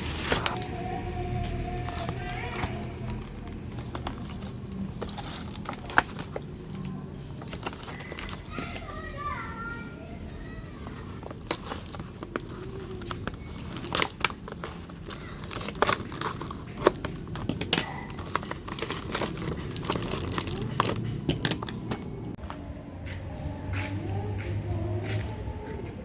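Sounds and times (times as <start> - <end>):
packaging crinkling: 0.0 - 9.6, 10.4 - 22.2.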